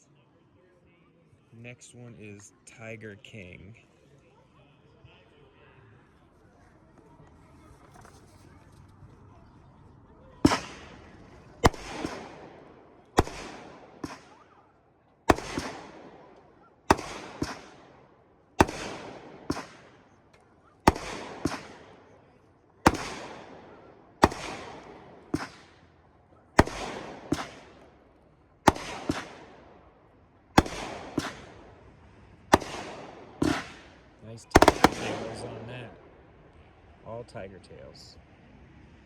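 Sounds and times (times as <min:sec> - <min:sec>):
faint firework crack: 0:10.4 - 0:14.6, 0:15.3 - 0:26.0, 0:26.6 - 0:29.9, 0:30.6 - 0:36.8
firework shots firing: 0:10.4 - 0:36.4.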